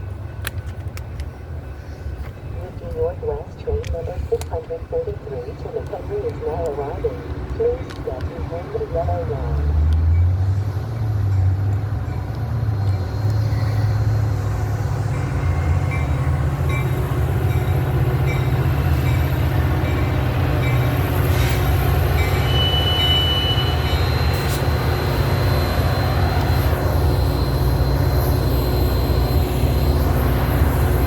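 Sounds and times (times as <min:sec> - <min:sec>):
high squeal of train: 0:00.0 - 0:31.0
train rumbling: 0:00.0 - 0:31.0.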